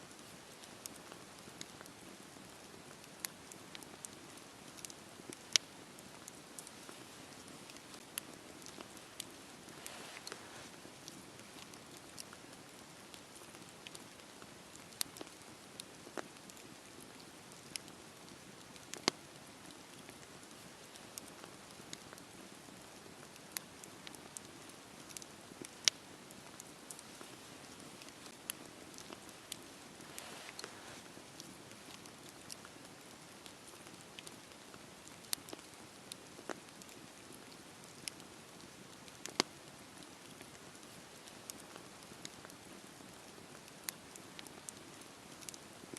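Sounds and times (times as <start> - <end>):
campfire hissing: 0.1 - 45.9
wood crackling and popping: 0.1 - 45.9.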